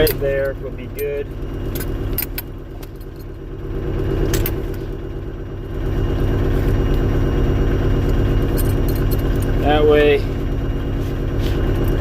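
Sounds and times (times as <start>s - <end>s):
heavy diesel engine revving: 3.6s - 12.0s.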